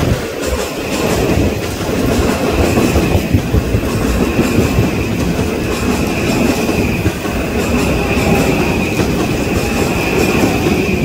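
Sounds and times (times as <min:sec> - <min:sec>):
clickety-clack over track: 0:00.0 - 0:11.0
train wheels rumbling on rail: 0:00.0 - 0:11.0.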